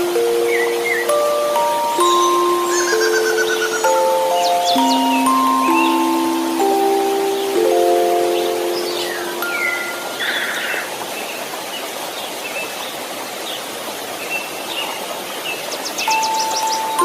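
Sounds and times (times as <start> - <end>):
held chime note: 0.0 - 10.6
bird-like chirps and trills: 0.0 - 12.8, 14.2 - 17.0
white-noise hiss: 0.0 - 17.0.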